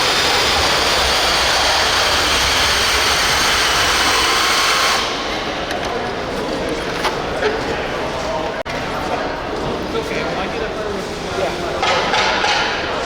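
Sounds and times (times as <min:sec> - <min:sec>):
high-pitched motor running flat out: 0:00.0 - 0:05.7.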